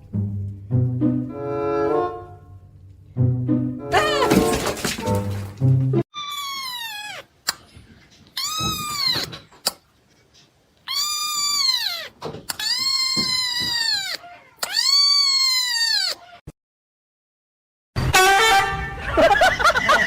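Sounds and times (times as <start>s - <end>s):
cat meowing: 6.2s - 7.3s, 8.4s - 9.4s, 10.9s - 16.4s.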